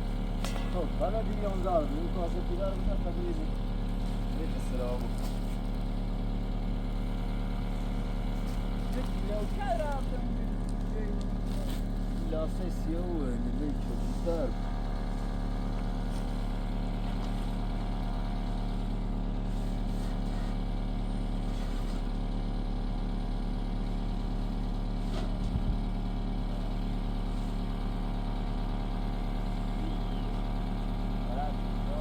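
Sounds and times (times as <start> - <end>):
small engine running steadily: 0.0 - 32.0.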